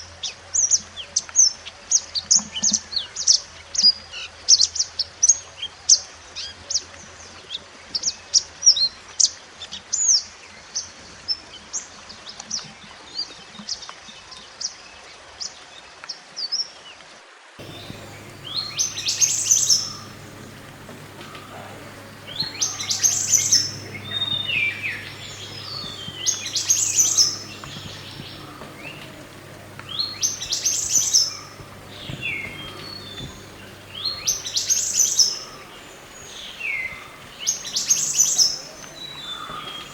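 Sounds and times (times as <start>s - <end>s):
birds singing: 17.6s - 39.9s
low steady hum: 17.6s - 39.9s
rapid high chirps: 17.6s - 39.9s.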